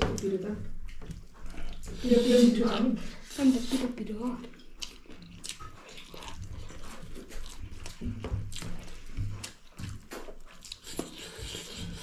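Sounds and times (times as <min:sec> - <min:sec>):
wet chewing and mouth smacks: 0:00.1 - 0:02.0, 0:04.4 - 0:12.0.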